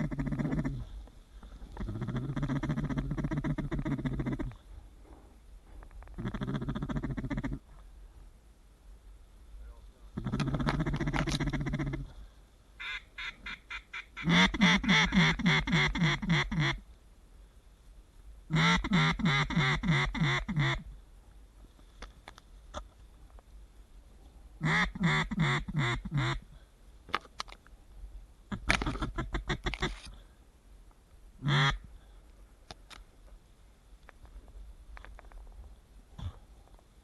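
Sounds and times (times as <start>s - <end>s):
duck quacking: 12.8s - 16.8s, 18.5s - 20.8s, 24.6s - 26.4s, 31.4s - 31.8s.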